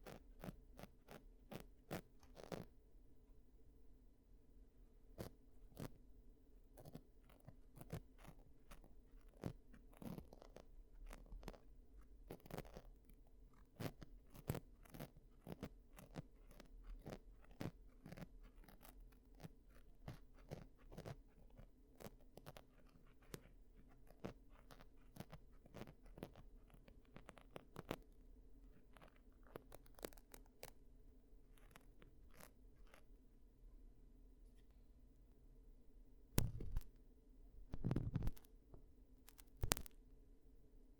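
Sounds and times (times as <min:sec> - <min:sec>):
ear cleaning clicks and scrapes: 0:00.0 - 0:02.7, 0:06.8 - 0:30.8, 0:31.5 - 0:33.1, 0:36.4 - 0:37.0, 0:37.6 - 0:40.0.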